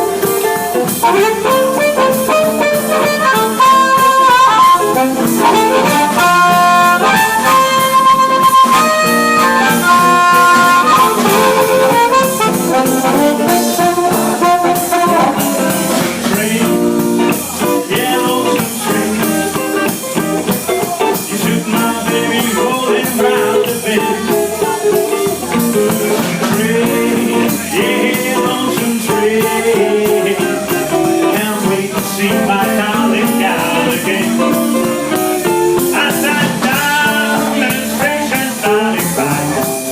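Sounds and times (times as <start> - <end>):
lead instrument high notes: 0.0 - 16.4
blues band playing: 0.0 - 39.9.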